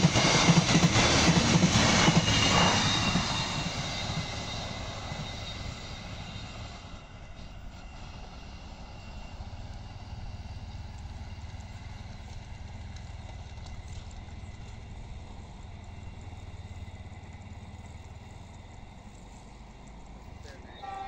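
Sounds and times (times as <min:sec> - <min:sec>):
motorcycle engine rumble: 0:07.3 - 0:21.0.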